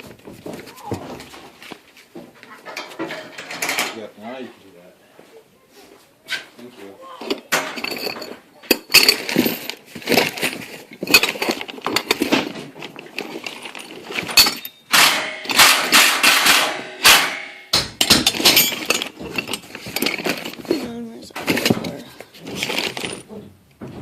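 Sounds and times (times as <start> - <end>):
cracks knocks and clattering: 0.0 - 4.0, 7.3 - 24.0
scraping: 6.3 - 24.0.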